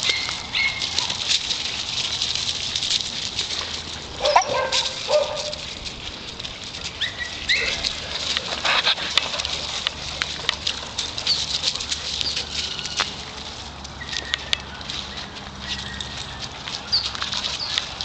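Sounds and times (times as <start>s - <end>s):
dogs barking: 0.0s - 1.4s, 4.1s - 5.8s
clicks and scuffs of movement: 0.0s - 18.0s
high dog calls: 4.2s - 5.7s.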